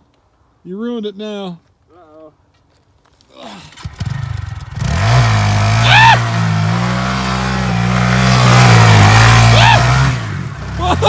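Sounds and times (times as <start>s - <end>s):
mini bike engine revving: 3.4s - 11.0s
short high cry: 9.4s - 10.0s.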